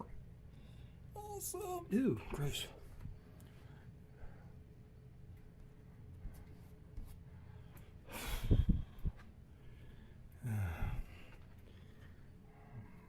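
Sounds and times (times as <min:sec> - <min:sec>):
man sighing: 0:10.4 - 0:11.2.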